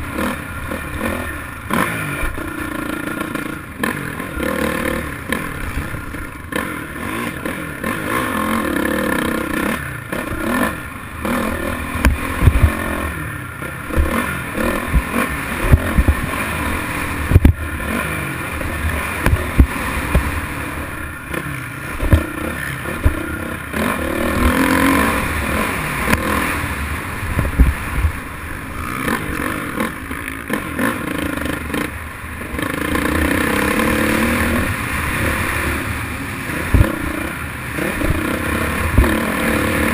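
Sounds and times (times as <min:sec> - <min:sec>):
dirt bike engines revving: 0:00.0 - 0:39.9
thumps and clatter: 0:12.0 - 0:12.8, 0:17.3 - 0:17.6, 0:22.0 - 0:22.3, 0:27.4 - 0:28.1.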